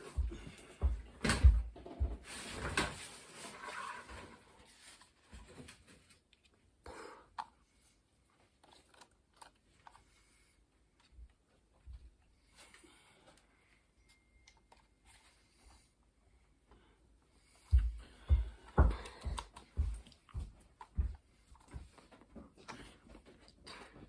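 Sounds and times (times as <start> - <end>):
knocks and thumps of objects: 0.2 - 3.0, 17.7 - 22.0.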